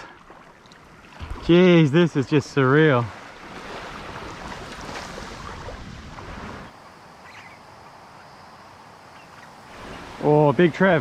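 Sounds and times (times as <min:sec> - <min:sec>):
small waves washing on shore: 0:00.0 - 0:11.0
wind buffeting microphone: 0:03.1 - 0:06.8.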